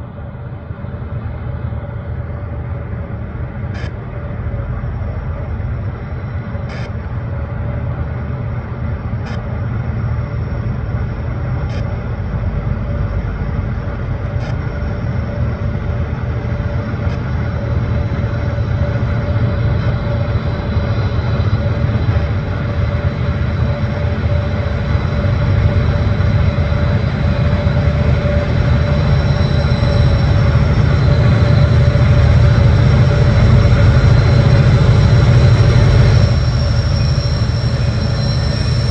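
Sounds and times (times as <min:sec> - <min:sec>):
locomotive engine rumble: 0:10.7 - 0:38.9.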